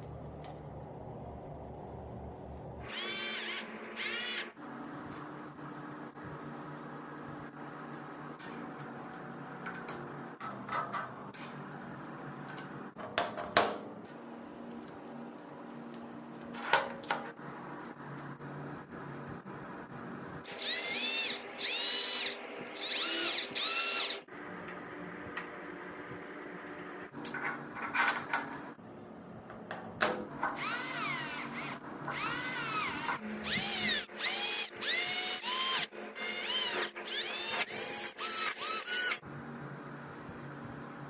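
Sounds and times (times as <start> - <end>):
electric drill short bursts: 2.8 - 4.6, 20.5 - 24.3, 30.6 - 39.2.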